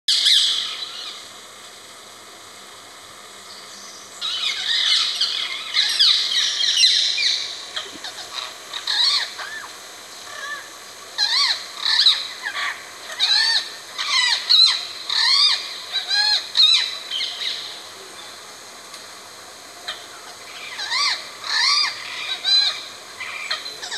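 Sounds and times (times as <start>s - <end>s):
forest birds calling: 0.1s - 1.6s, 2.6s - 23.9s.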